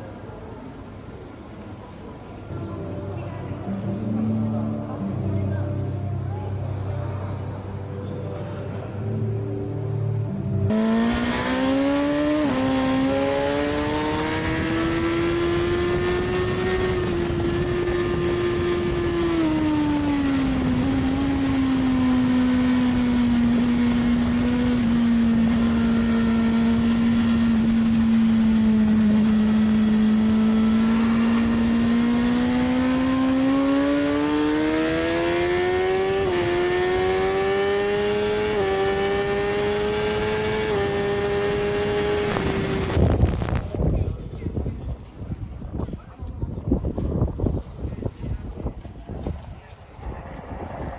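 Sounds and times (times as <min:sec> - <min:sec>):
motorcycle engine accelerating: 0:10.7 - 0:43.8
wind rush: 0:40.8 - 0:50.9.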